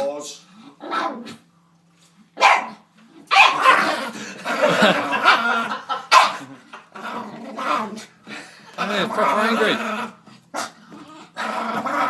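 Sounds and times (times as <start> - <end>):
dog barking and growling: 0.8 - 1.5, 2.4 - 8.1, 8.8 - 12.0.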